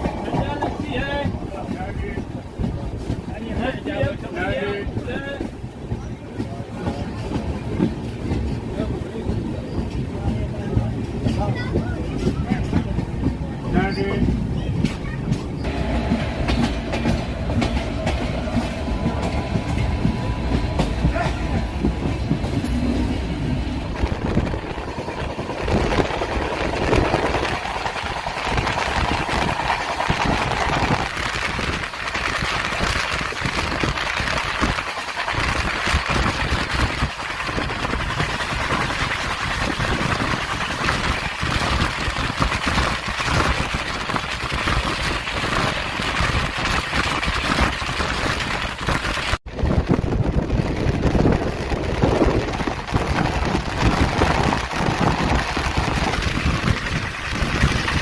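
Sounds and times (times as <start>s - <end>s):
train rumble: 0.0s - 58.0s
loud rushing noise: 23.2s - 58.0s
wheels clicking over track: 23.9s - 58.0s.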